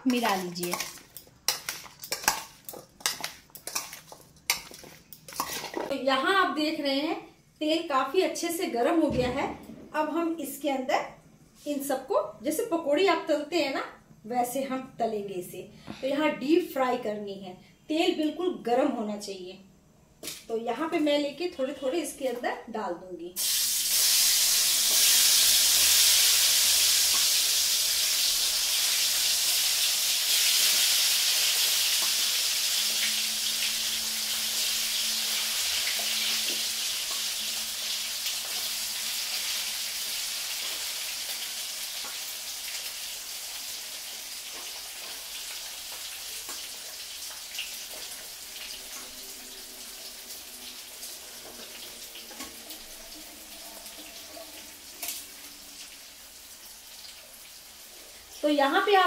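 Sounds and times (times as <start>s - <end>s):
food deep-frying in hot oil: 0.0s - 5.9s, 23.4s - 59.0s
oil crackling: 0.0s - 5.9s.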